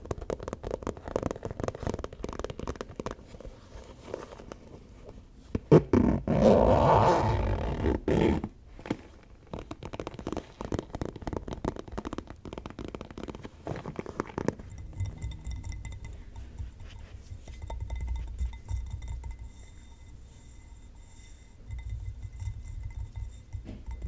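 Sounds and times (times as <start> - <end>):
rapid fingertip tapping: 9.6 - 19.8
faint ringing tones: 14.6 - 24.0.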